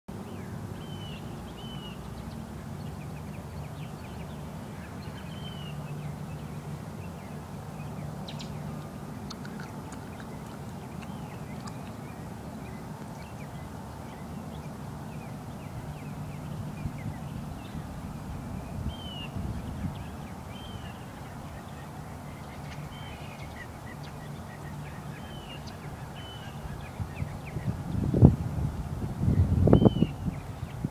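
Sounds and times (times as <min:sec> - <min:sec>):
steady low hum: 0:00.1 - 0:30.9
birds chirping: 0:00.8 - 0:18.0.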